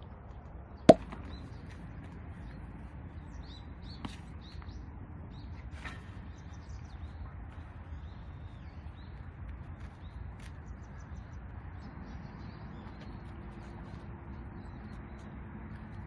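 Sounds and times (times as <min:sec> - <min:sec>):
small birds chirping: 0:06.2 - 0:16.0.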